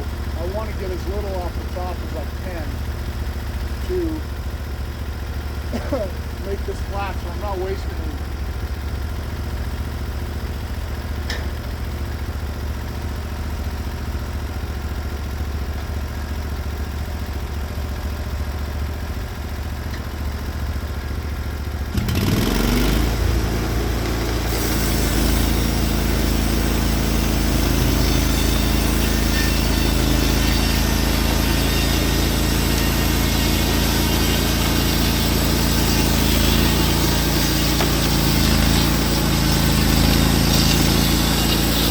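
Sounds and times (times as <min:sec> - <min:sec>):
sawmill engine idling and revving: 0:00.0 - 0:41.9
band blade hissing through log: 0:24.2 - 0:41.9.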